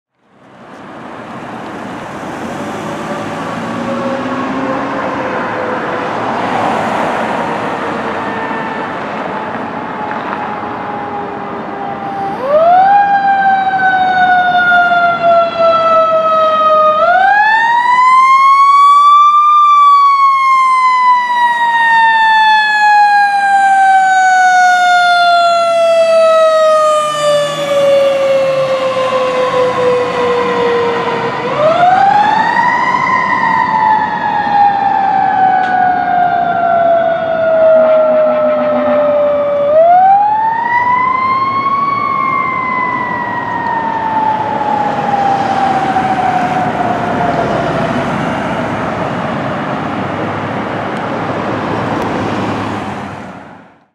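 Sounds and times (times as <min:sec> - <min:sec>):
fire engine siren wailing: 0:00.7 - 0:53.9.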